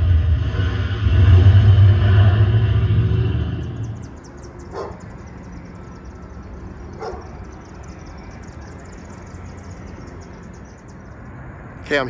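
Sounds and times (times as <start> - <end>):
dog barking: 4.7 - 5.0, 7.0 - 7.3.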